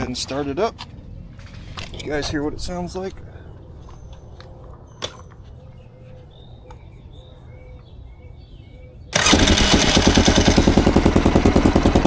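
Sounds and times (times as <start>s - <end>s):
atv engine starting and running: 9.2s - 12.0s.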